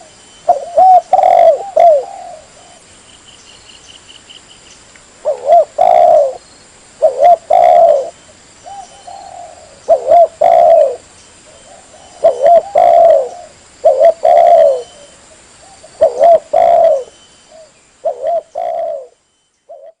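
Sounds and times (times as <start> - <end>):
dove cooing: 0.0 - 2.8, 5.2 - 6.4, 7.0 - 20.0.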